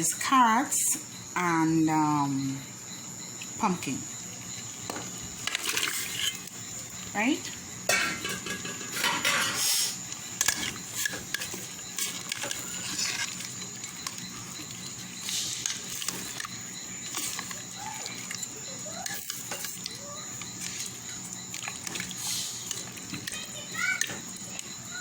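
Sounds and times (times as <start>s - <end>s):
steady background hum: 0.0s - 25.0s
knocks and clinks in a pot: 4.8s - 6.6s, 7.4s - 25.0s.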